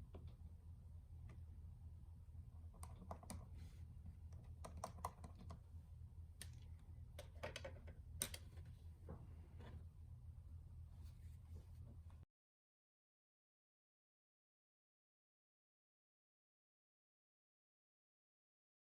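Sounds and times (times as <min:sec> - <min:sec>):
faint low hum: 0:00.0 - 0:12.3.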